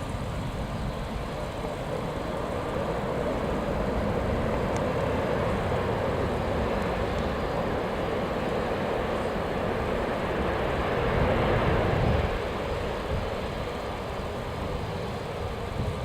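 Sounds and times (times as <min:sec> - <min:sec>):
jet engines rushing: 0:00.0 - 0:16.0.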